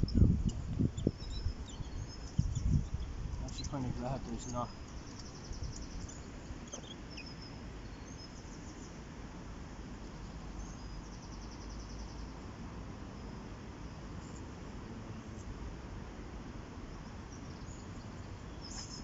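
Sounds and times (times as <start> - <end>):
songbirds trilling and chirping: 0.0 - 15.6, 16.8 - 19.0.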